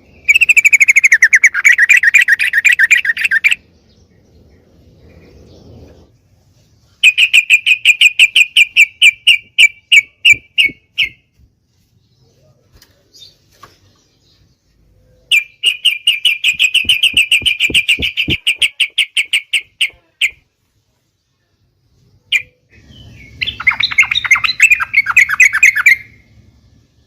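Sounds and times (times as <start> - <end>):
bulbul chattering call: 0.2 - 3.6, 7.0 - 11.2, 15.3 - 20.4, 22.3 - 26.2.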